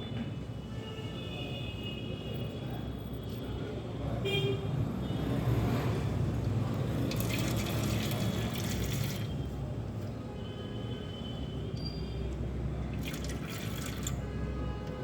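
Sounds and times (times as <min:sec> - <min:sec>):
water squirting into can: 0:07.0 - 0:09.4, 0:12.9 - 0:14.3.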